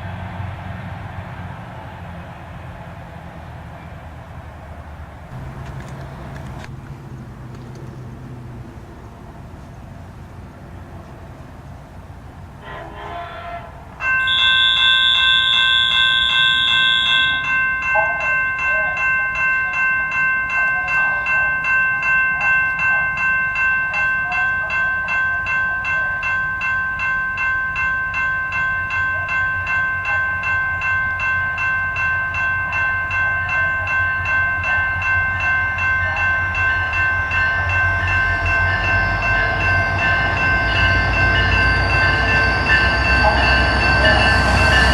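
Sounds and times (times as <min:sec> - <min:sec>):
low rumble of approaching train: 0:00.0 - 0:44.9
railroad crossing bell ringing: 0:05.3 - 0:06.9, 0:12.7 - 0:44.9.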